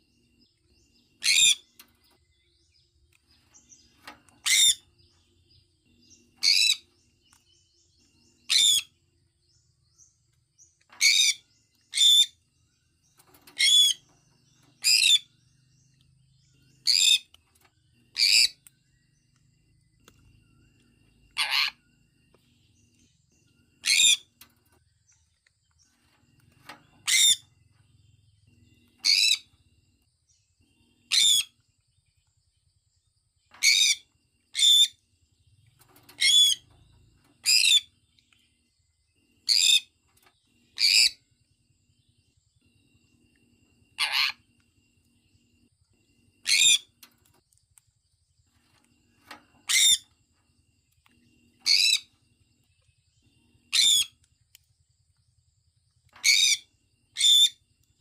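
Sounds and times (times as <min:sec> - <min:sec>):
soft chirps: 0:00.0 - 0:58.0
parrot high-pitched calls: 0:01.2 - 0:01.7, 0:04.4 - 0:04.8, 0:08.5 - 0:08.9, 0:21.4 - 0:21.8, 0:23.8 - 0:24.3, 0:27.0 - 0:27.4, 0:31.1 - 0:31.5, 0:40.8 - 0:41.2, 0:44.0 - 0:44.4, 0:46.4 - 0:46.9, 0:49.7 - 0:50.0, 0:51.6 - 0:52.1, 0:53.7 - 0:54.2, 0:56.2 - 0:57.6.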